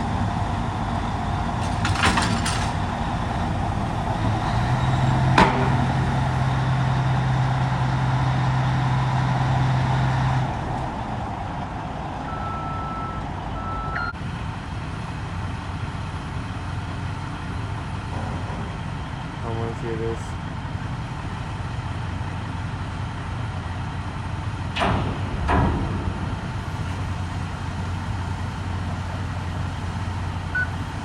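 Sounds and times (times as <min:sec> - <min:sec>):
heavy machinery engine running: 0:00.0 - 0:31.0
metal clank: 0:01.2 - 0:06.6, 0:24.7 - 0:31.0
short beeps: 0:12.3 - 0:14.2.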